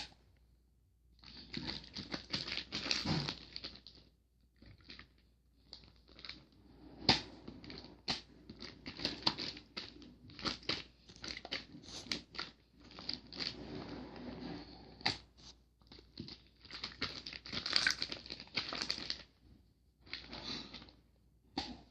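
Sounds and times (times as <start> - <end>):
slime squeezed by hand: 16.9 - 18.9.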